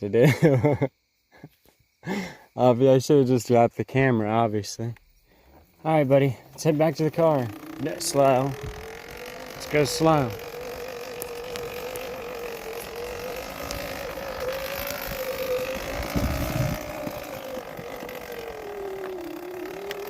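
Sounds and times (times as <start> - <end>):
electric bike motor whining: 5.4 - 20.0.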